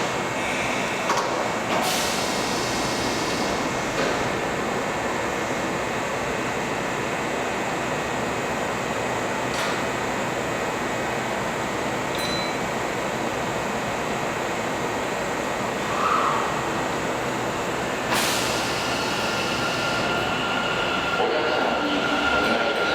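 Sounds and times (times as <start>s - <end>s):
train machinery whirring: 14.3s - 22.9s.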